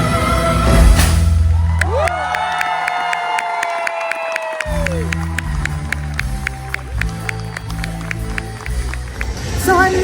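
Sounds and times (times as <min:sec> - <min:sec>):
live show music: 0:00.0 - 0:10.0
crowd cheering and whooping: 0:01.4 - 0:09.4.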